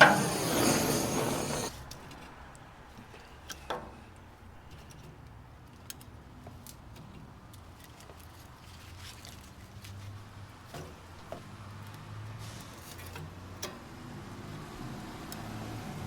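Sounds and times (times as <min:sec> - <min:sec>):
fire rumbling in firebox: 0:00.0 - 0:01.8.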